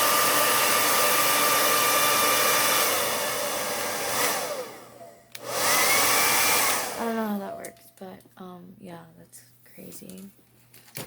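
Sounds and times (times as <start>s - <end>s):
hair dryer whining: 0.0s - 7.6s
hair dryer switch click: 5.3s - 5.7s.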